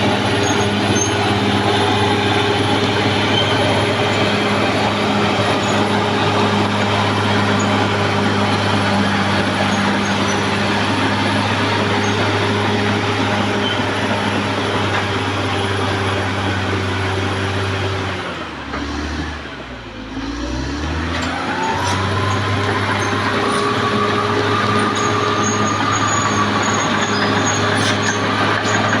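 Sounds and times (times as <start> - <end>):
bulldozer diesel engine: 0.0 - 29.0.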